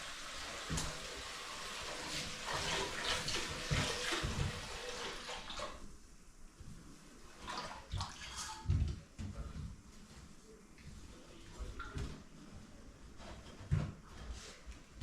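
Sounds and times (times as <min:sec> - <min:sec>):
water running and splashing: 0:00.0 - 0:05.9.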